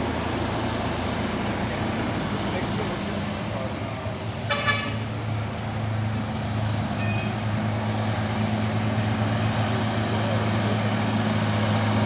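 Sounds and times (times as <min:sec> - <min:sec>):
diesel truck engine humming: 0:00.0 - 0:12.0.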